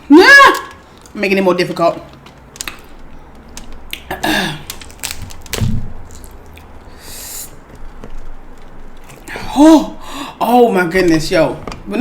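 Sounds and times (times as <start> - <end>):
crab shell cracking: 2.1 - 6.9.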